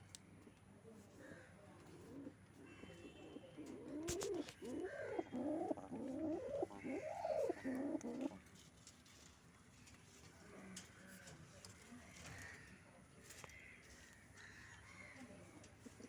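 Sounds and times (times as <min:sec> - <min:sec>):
pigeon cooing: 0:01.8 - 0:08.4.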